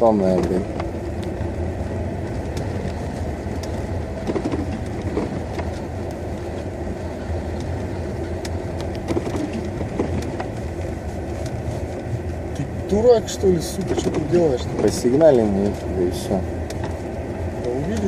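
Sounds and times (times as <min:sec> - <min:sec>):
car engine low hum: 0:00.0 - 0:18.0
road and tyre noise: 0:00.0 - 0:18.0.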